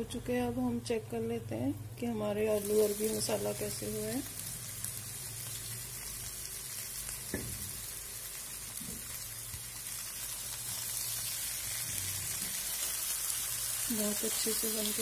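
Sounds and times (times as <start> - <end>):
potatoes sizzling in a pan: 2.1 - 15.0.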